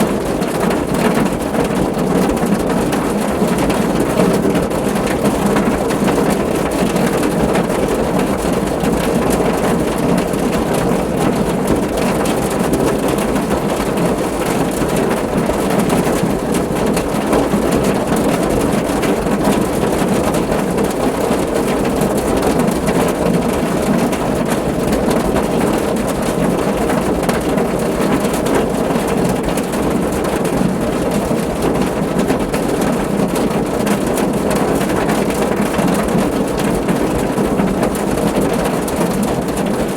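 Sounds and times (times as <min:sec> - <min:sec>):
rain drumming on car roof: 0:00.0 - 0:39.9.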